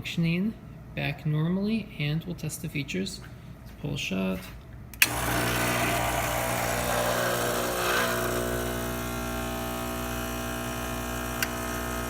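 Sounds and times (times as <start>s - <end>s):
espresso machine pump buzzing: 5.0s - 12.0s
small click: 11.4s - 11.6s.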